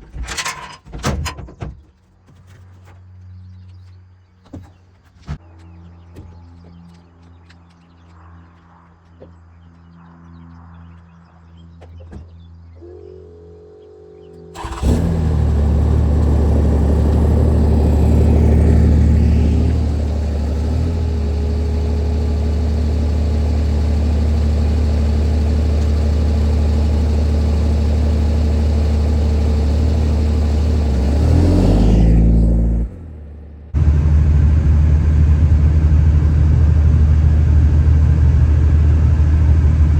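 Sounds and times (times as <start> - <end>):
pickup truck engine running: 14.5 - 39.9.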